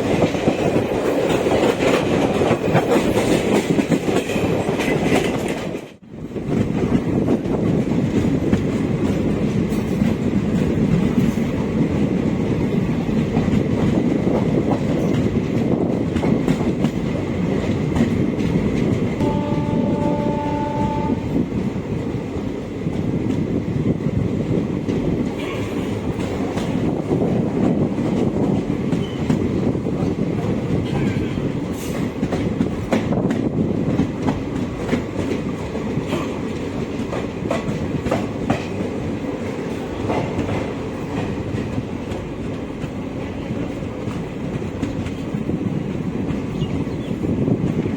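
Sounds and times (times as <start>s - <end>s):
train wheels clickety-clack: 0.0s - 47.9s
train horn: 19.2s - 21.5s.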